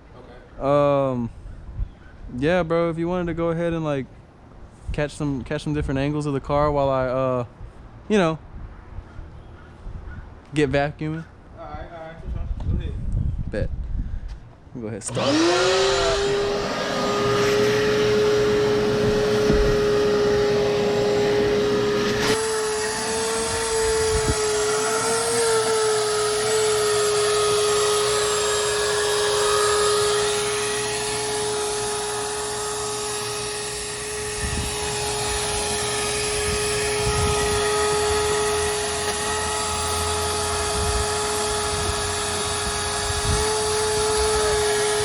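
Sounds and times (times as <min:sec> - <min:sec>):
shop vacuum running: 0:15.1 - 0:45.0.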